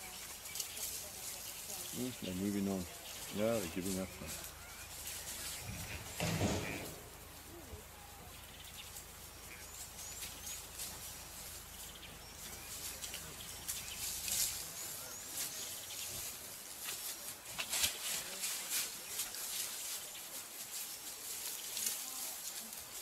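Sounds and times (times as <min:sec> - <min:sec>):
small bird chirping: 0:00.0 - 0:16.4.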